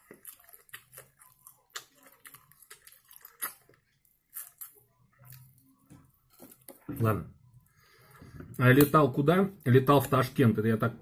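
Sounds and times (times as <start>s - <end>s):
wet chewing and lip smacks: 0.0s - 5.7s.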